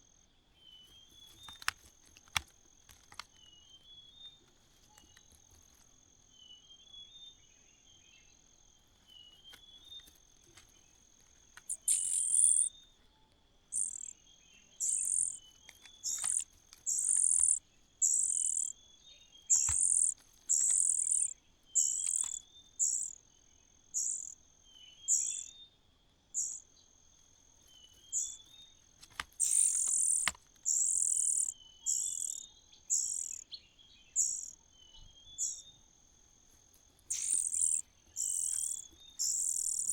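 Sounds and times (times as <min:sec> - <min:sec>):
nestlings begging calls: 0:11.6 - 0:12.8, 0:13.7 - 0:23.2, 0:23.9 - 0:25.6, 0:26.4 - 0:26.6, 0:27.9 - 0:34.6, 0:35.2 - 0:35.7, 0:36.5 - 0:39.9.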